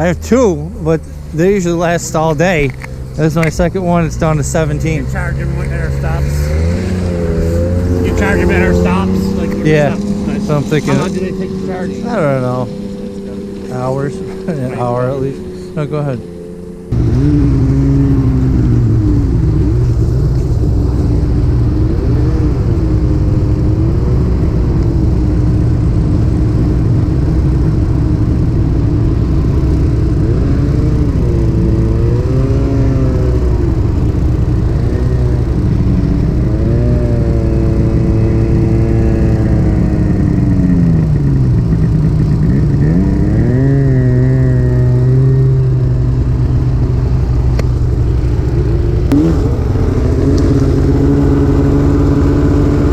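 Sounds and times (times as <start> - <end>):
snowmobile engine revving: 0.0 - 52.9
steady low rumble: 0.0 - 52.9.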